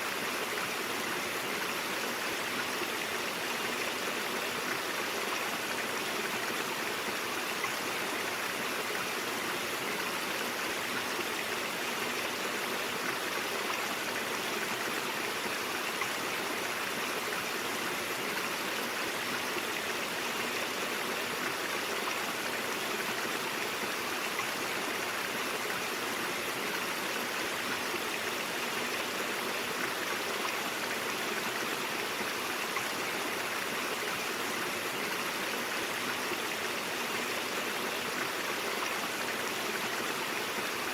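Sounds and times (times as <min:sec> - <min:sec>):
stream flowing over rocks: 0:00.0 - 0:40.9.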